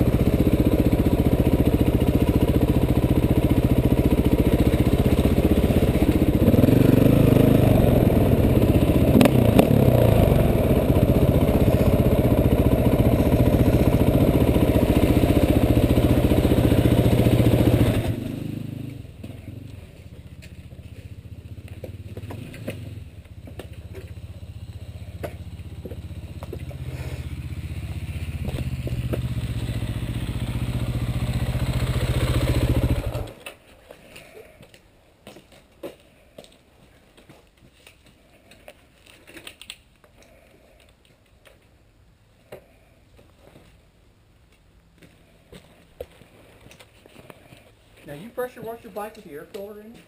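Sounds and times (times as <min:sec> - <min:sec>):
dirt bike engine running: 0:00.0 - 0:33.4.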